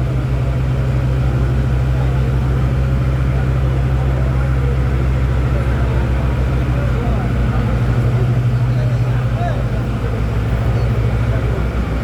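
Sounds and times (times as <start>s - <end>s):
murmur of voices: 0.0s - 12.0s.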